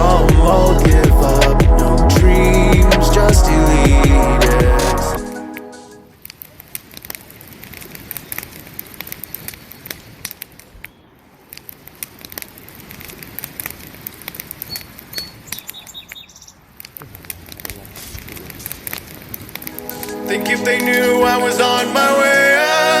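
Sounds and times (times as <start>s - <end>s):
campfire crackling and popping: 6.1s - 19.9s
steady fire hiss: 6.2s - 15.2s, 16.6s - 20.9s.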